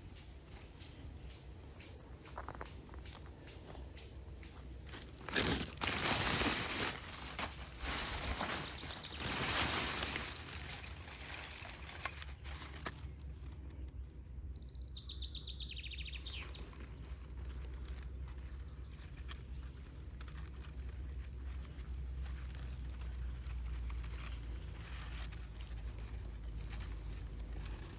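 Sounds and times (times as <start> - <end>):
loud rustling: 4.9 - 12.8
songbird trilling: 14.2 - 16.6.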